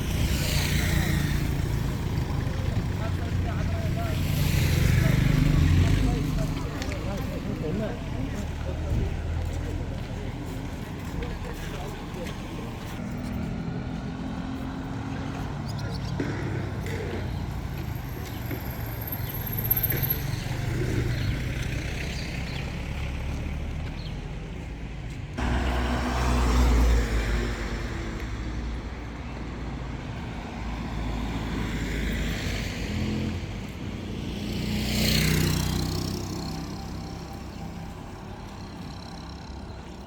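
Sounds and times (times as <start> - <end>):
vehicle passing close by: 0.0 - 9.5, 25.4 - 28.5
motor vehicle rumble: 0.0 - 40.0.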